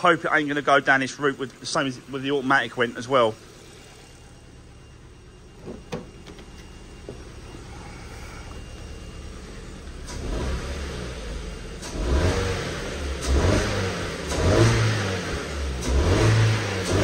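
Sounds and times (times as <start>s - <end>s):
car engine revving: 6.6s - 17.0s.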